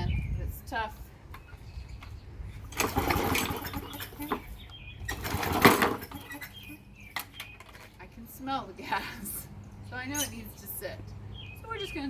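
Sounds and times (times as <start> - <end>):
recoil starter pulled: 1.4 - 8.0
small engine turning over: 2.6 - 7.8.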